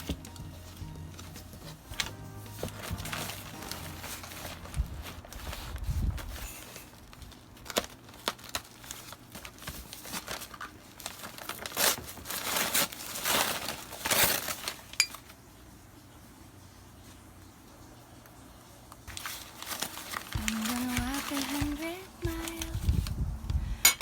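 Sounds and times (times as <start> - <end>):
packaging crinkling and rustling: 0.0 - 15.4, 19.0 - 23.8.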